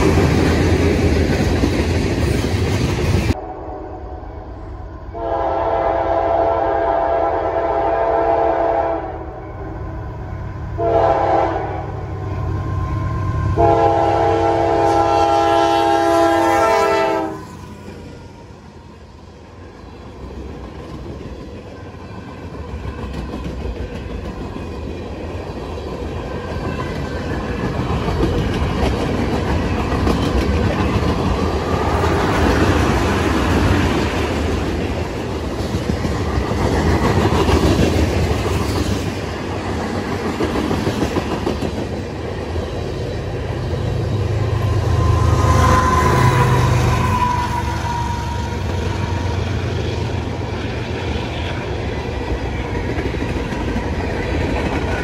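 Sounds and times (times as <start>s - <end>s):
locomotive air horn blasts: 5.1s - 9.6s, 10.8s - 12.0s, 13.4s - 17.6s
train wheels clacking over rail joints: 22.4s - 43.8s.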